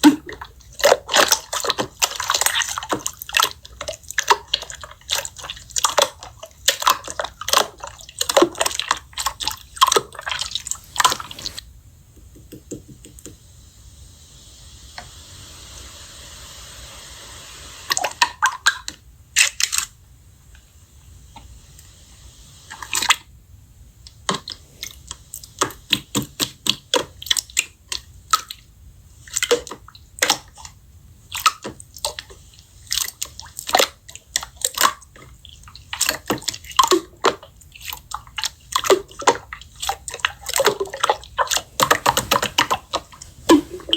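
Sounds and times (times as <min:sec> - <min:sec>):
soft hiss: 0:10.0 - 0:12.4, 0:13.0 - 0:18.0, 0:41.5 - 0:43.9.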